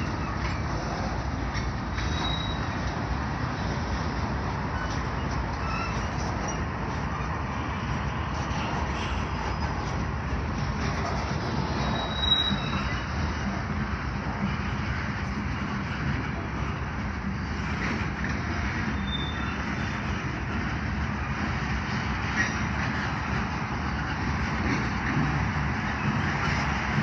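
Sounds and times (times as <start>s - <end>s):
train wheels rolling on rail: 0.0s - 27.0s
wheel squeal: 1.9s - 3.8s, 4.6s - 7.8s, 8.4s - 10.1s, 10.8s - 13.4s, 18.8s - 20.3s.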